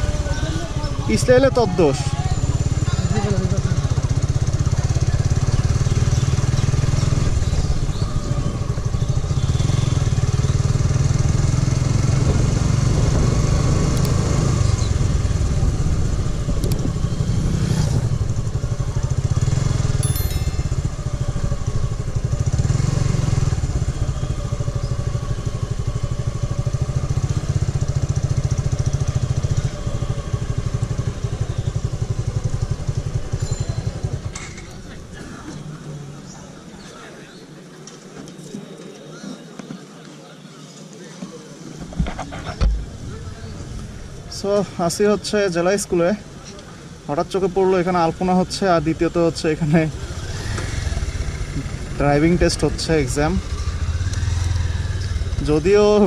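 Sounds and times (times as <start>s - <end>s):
motorcycle engine running: 0.0s - 35.2s, 49.6s - 56.0s.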